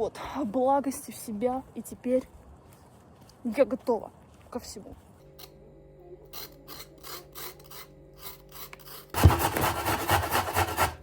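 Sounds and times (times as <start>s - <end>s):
carrot grating on metal grater: 6.4s - 11.0s.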